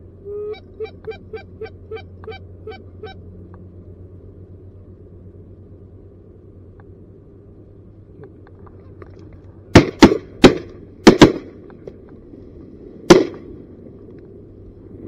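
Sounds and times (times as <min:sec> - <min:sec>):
shotgun shots: 0:09.7 - 0:11.5, 0:13.1 - 0:13.5.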